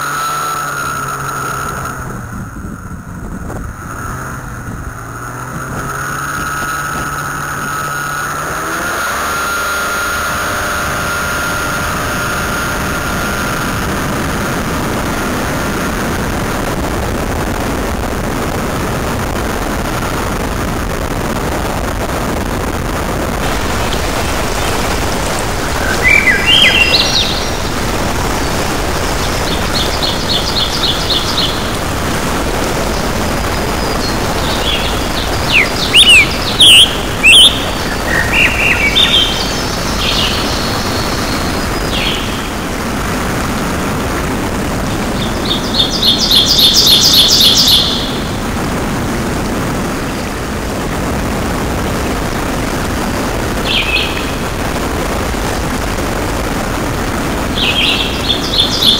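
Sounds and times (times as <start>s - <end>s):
steady noise hiss: 0.0s - 58.9s
songbirds chirping and trilling: 23.4s - 48.7s, 53.2s - 55.1s, 56.9s - 58.9s.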